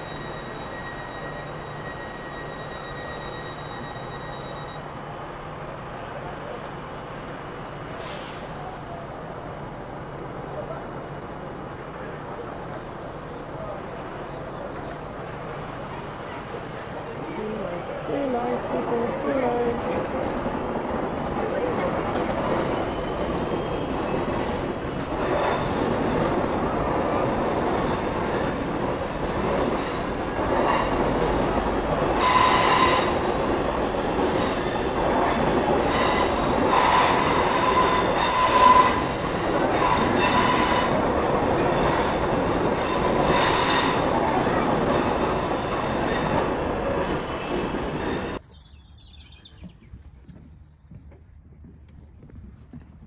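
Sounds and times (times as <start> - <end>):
high wheel squeal: 0.0 - 5.0, 32.0 - 48.4
train rumbling past: 0.0 - 48.5.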